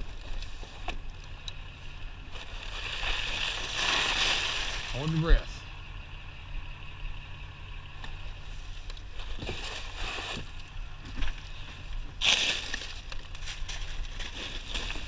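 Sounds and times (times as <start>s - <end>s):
steady low hum: 0.0s - 15.0s
scrap scraping rustle: 2.3s - 5.2s, 8.5s - 15.0s.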